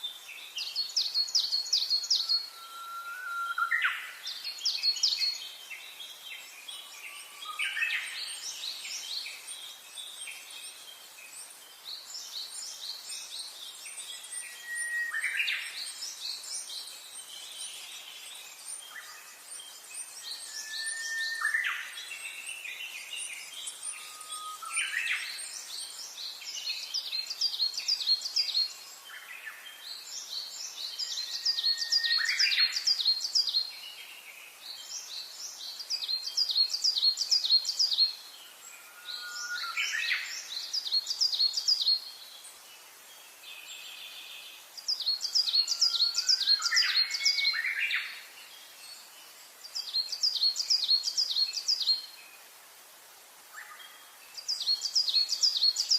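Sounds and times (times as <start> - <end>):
songbirds chirping: 0.0 - 55.9
upward-gliding bird whistles: 2.4 - 3.9.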